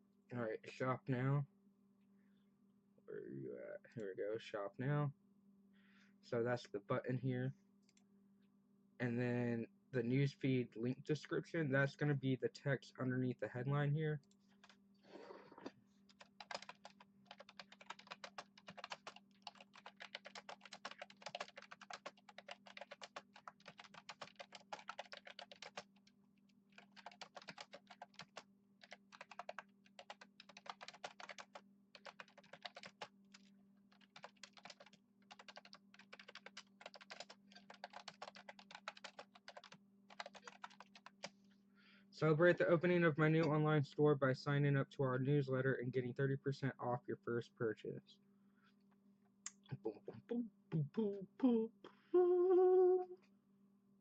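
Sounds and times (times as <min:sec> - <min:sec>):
faint steady hum: 0:00.0 - 0:54.0
keyboard typing: 0:16.1 - 0:26.1, 0:26.7 - 0:41.3.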